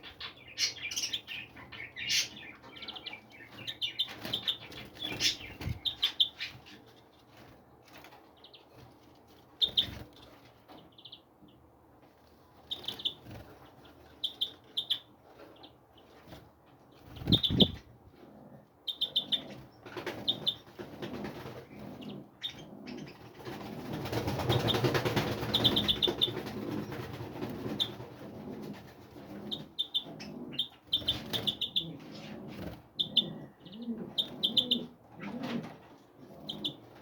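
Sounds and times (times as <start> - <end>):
small birds chirping: 0.0 - 37.0
fluttering wingbeats: 23.2 - 28.2.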